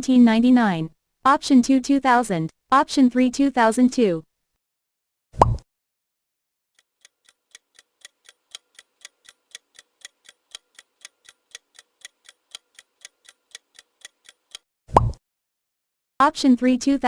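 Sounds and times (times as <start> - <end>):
clock ticking: 6.8 - 14.6.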